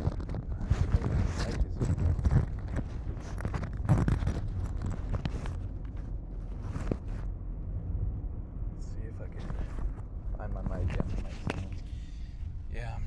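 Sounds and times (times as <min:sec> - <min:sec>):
low rumble on microphone: 0:00.0 - 0:13.0.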